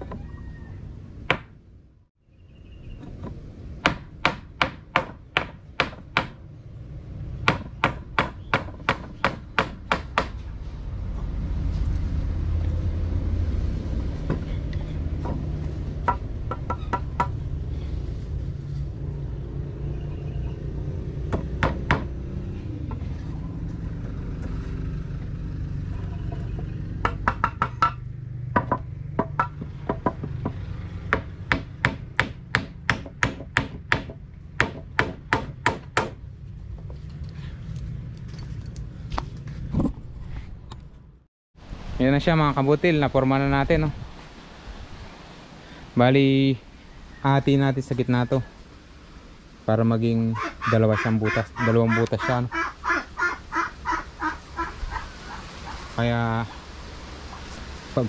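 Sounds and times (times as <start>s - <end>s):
hammer striking nails into wood: 3.8s - 6.4s, 7.4s - 10.4s, 21.3s - 22.1s, 28.6s - 36.2s.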